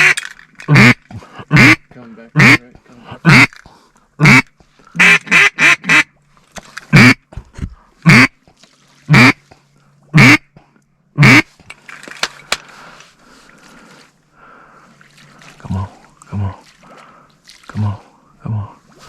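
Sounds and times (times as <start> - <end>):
duck call quacks: 0.0 - 1.8, 2.4 - 2.6, 3.2 - 3.5, 4.2 - 6.1, 6.9 - 7.2, 8.0 - 8.3, 9.1 - 9.4, 10.2 - 10.5, 11.2 - 11.5.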